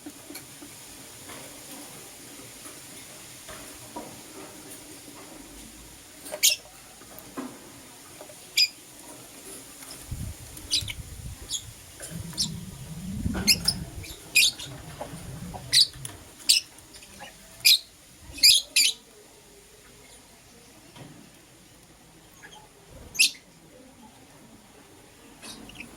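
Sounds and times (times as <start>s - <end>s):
birds chirping sharply: 10.7s - 14.9s
low rumble: 12.0s - 16.3s.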